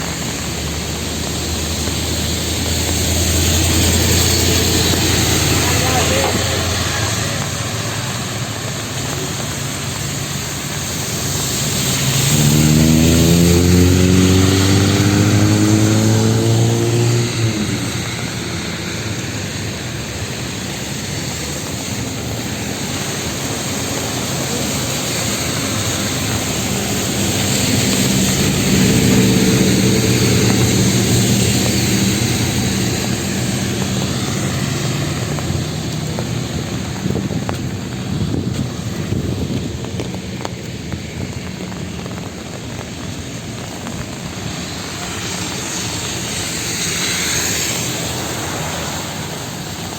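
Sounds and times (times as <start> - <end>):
city street traffic: 0.0 - 49.9
rain hiss: 0.0 - 49.9
vehicle engine accelerating past: 11.2 - 19.0, 24.6 - 37.8.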